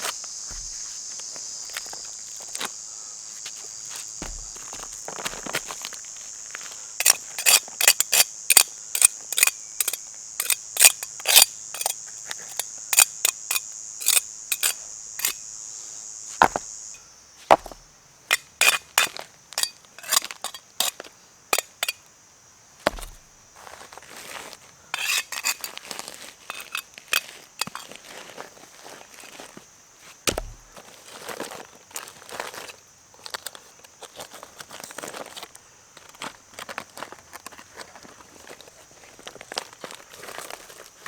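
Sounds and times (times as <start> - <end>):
insects chirring: 0.0 - 41.0.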